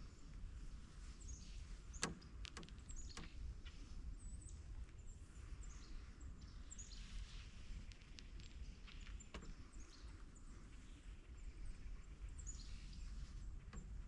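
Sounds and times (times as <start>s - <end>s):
low steady rumble: 0.0s - 14.0s
sharp clicks: 2.0s - 3.4s.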